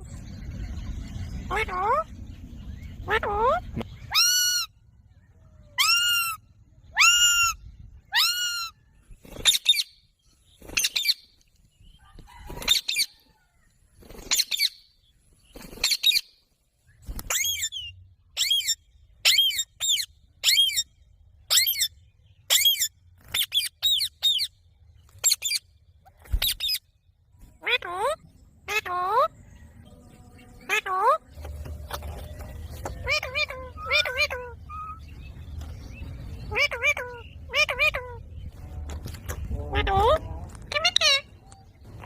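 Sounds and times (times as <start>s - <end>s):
parrot harsh calls: 5.8s - 8.8s, 33.0s - 35.0s.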